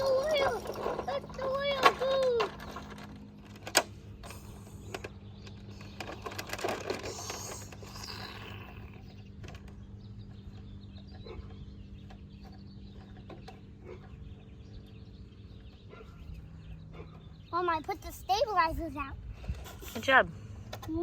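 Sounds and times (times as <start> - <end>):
plastic toy clicking and scraping: 0.0 - 9.8
steady low hum: 0.0 - 21.0.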